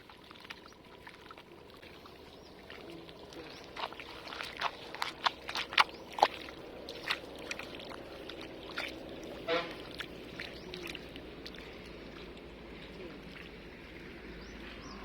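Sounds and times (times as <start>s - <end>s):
water and mud splashing: 0.0s - 15.0s.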